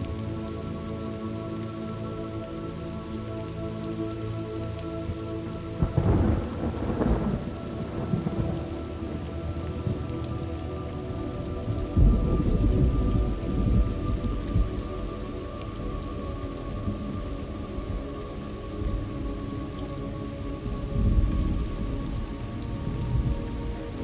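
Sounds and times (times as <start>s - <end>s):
steady rain falling: 0.0s - 24.0s
thunder rumbling: 5.8s - 18.1s, 20.6s - 24.0s.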